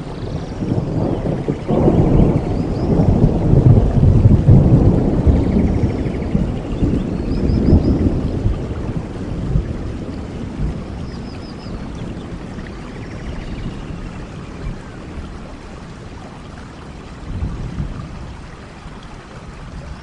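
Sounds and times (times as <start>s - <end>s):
rain hissing: 0.0s - 20.0s.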